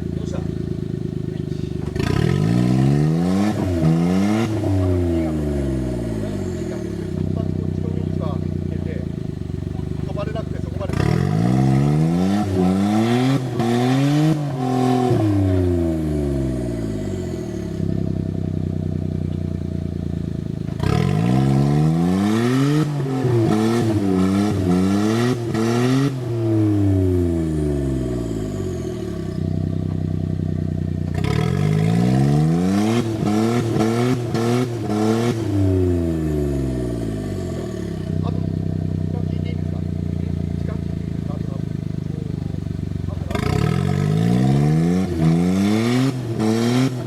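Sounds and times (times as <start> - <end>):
engine revving up and down: 0.0 - 47.0.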